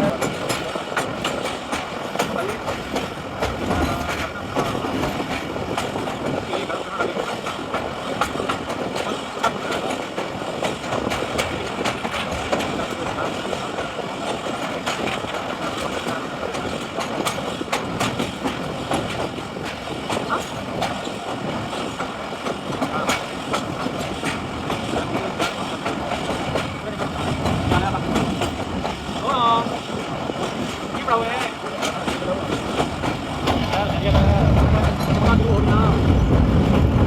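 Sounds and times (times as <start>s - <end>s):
train carriages rumbling: 0.0s - 37.0s
wheels clicking over rails: 0.0s - 37.0s.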